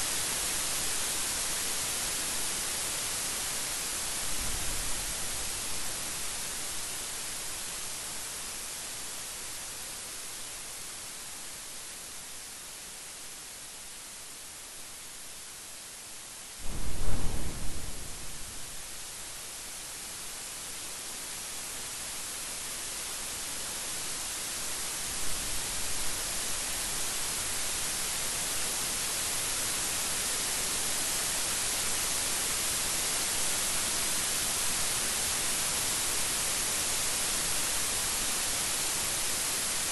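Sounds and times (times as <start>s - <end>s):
heavy rain hiss: 0.0s - 39.9s
loud thunder clap: 16.6s - 19.1s
faint thunder rumble: 16.6s - 19.2s.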